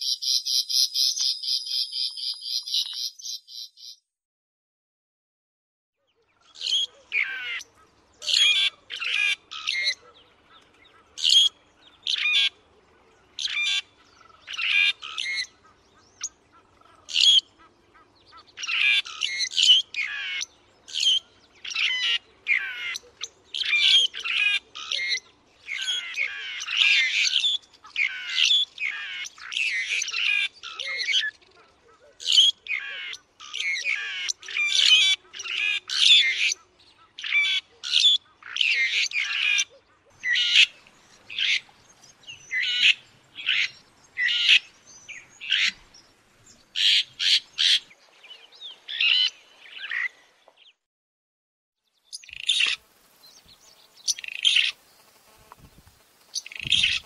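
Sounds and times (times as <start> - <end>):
bird harsh chattering calls: 6.5 - 12.6, 13.3 - 46.1, 46.7 - 47.9, 52.1 - 57.0.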